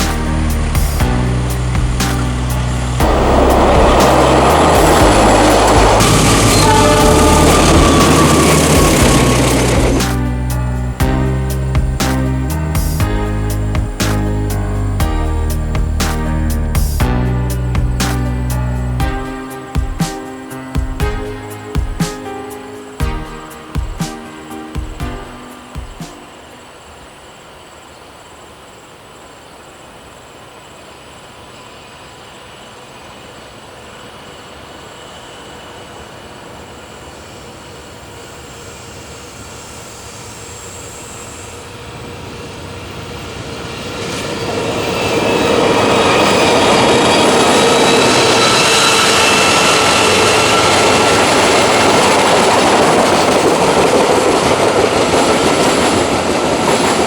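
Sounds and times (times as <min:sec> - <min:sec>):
train passing: 0:00.0 - 0:57.0
train wheels squealing: 0:01.5 - 0:10.2, 0:30.9 - 0:57.0.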